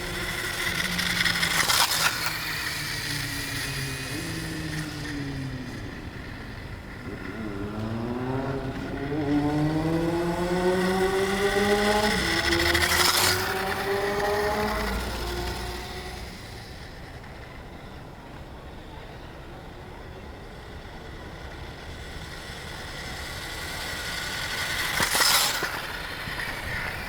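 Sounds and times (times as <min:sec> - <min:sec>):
electric motor whining: 0:00.0 - 0:17.1.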